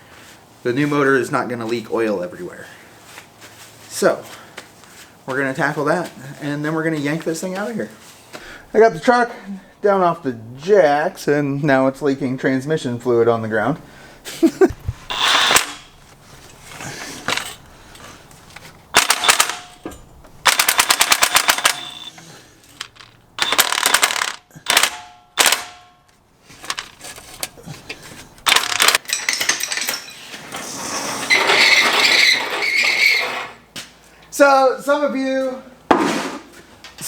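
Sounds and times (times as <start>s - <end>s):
impact wrench hammering: 15.1s - 16.0s, 19.0s - 22.2s, 22.9s - 26.0s.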